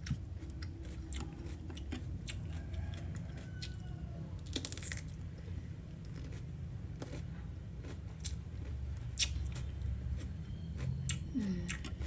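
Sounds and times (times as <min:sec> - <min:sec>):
chewing cucumber: 0:00.0 - 0:05.2, 0:06.0 - 0:12.0.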